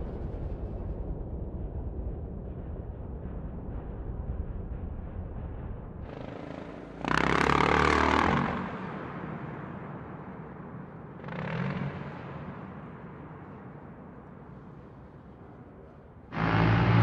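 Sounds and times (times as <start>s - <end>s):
low rumble: 0.0s - 6.9s
motorcycle engine revving: 6.1s - 8.9s, 16.3s - 17.0s.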